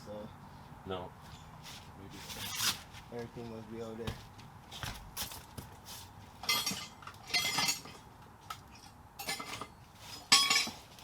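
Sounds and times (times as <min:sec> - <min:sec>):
metal tools clinking and rattling: 0:06.4 - 0:11.0.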